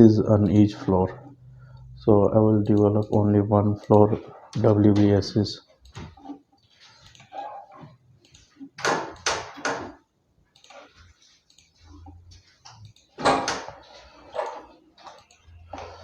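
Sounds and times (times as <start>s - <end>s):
computer clicks and taps: 2.5s - 5.2s, 8.2s - 16.0s.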